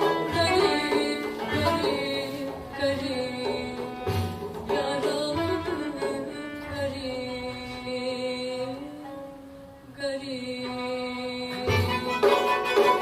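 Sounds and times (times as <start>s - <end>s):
classical music ensemble: 0.0s - 7.8s, 10.7s - 13.0s
percussion: 0.0s - 8.0s, 11.0s - 13.0s.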